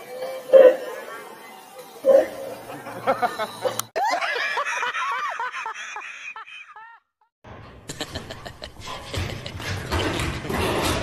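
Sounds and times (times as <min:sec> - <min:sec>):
people giggling: 0:02.4 - 0:10.5.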